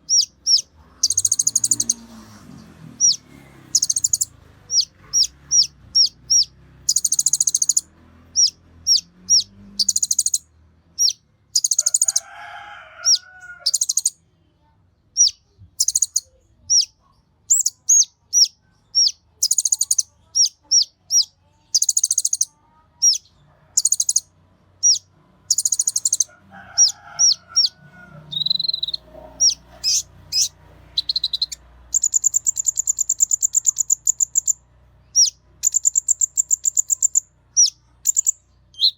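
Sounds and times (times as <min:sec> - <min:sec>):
high-pitched bird chirps and trills: 0:00.0 - 0:02.0, 0:03.0 - 0:12.2, 0:13.0 - 0:14.2, 0:15.2 - 0:38.9
faint lower bird call: 0:24.8 - 0:34.6.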